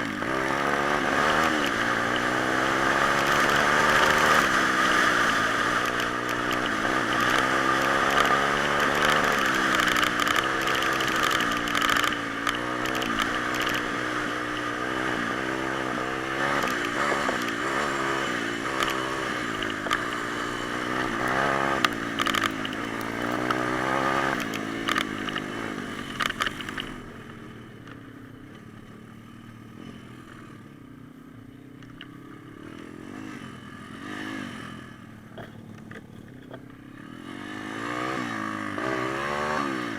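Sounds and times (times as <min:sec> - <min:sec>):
pit bike engine revving: 0:00.0 - 0:27.6, 0:32.0 - 0:39.9
knocks and rattles: 0:35.3 - 0:36.8.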